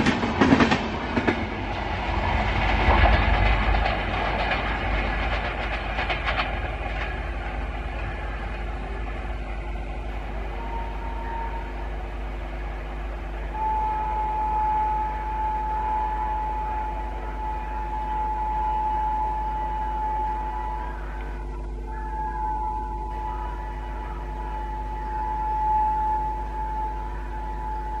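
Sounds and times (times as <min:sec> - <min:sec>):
high-pitched whine: 0:00.0 - 0:28.0
train rumbling on track: 0:00.0 - 0:28.0
high steady tone: 0:07.0 - 0:28.0.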